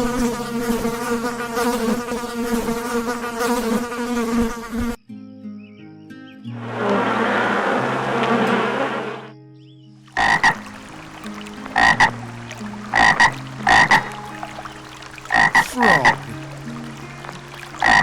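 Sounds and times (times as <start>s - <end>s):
insect buzzing: 0.0s - 5.0s, 10.2s - 18.0s
frog croaking: 10.1s - 18.0s.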